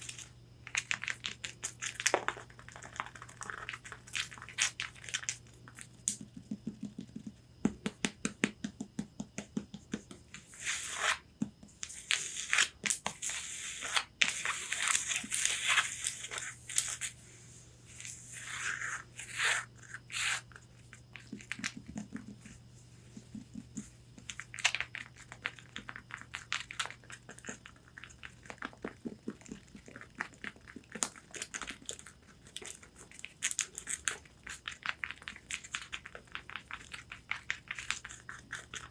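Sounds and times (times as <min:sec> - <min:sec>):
fingernails tapping on fabric: 0:06.2 - 0:10.2.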